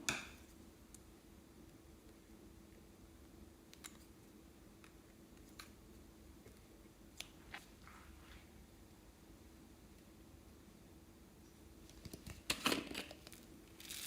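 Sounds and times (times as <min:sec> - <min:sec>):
low steady hum: 0:00.0 - 0:14.0
soft rustle: 0:07.4 - 0:08.6.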